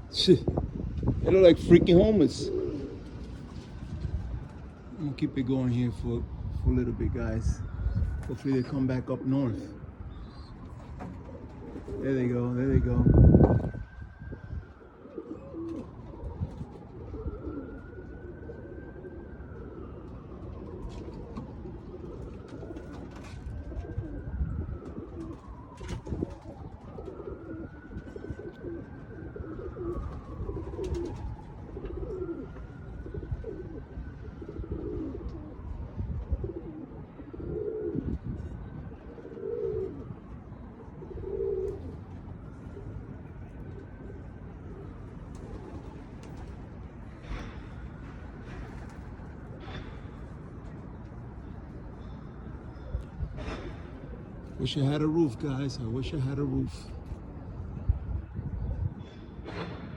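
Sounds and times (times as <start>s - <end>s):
wind buffeting microphone: 0.0s - 8.5s, 12.6s - 14.9s, 18.8s - 39.2s, 57.2s - 59.9s
pigeons cooing: 1.3s - 5.2s, 7.2s - 57.4s.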